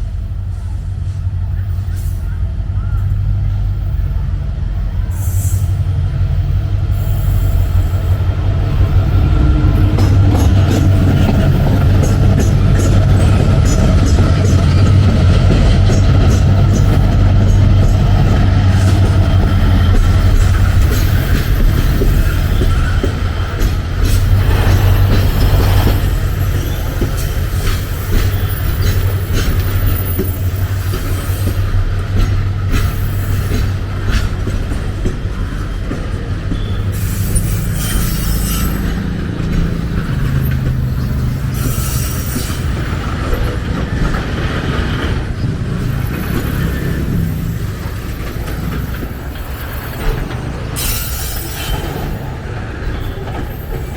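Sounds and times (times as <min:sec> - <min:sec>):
train rumbling past: 0:00.0 - 0:53.9
high wheel squeal: 0:06.9 - 0:31.6, 0:35.6 - 0:44.2, 0:45.8 - 0:53.9
wheels clicking over rail joints: 0:07.9 - 0:53.9.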